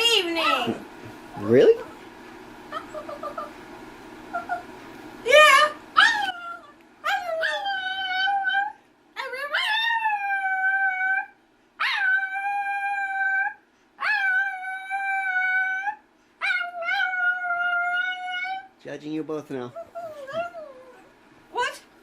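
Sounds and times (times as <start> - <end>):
small dog yelping: 2.7 - 3.5, 4.3 - 4.7, 5.3 - 18.7, 19.7 - 21.1
small dog howling: 4.3 - 4.7, 5.3 - 18.7, 19.8 - 21.1.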